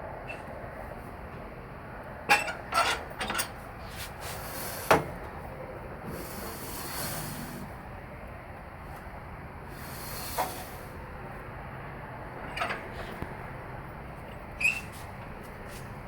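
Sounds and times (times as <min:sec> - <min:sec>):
hiss: 0:04.2 - 0:05.1, 0:06.1 - 0:07.8, 0:09.7 - 0:11.0.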